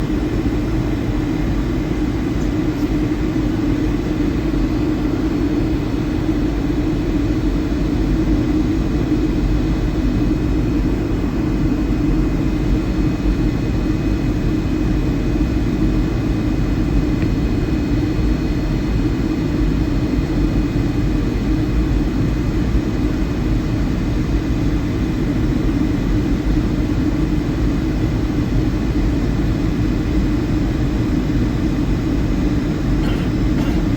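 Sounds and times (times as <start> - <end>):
aircraft cabin engine rumble: 0.0 - 33.9
faint high whine: 33.0 - 33.9.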